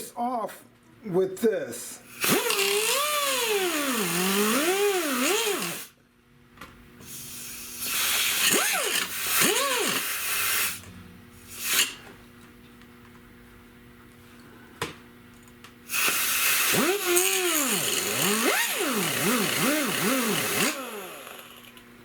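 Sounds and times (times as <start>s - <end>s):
power tool cutting plastic: 2.2s - 5.9s, 7.8s - 10.8s, 15.9s - 21.8s.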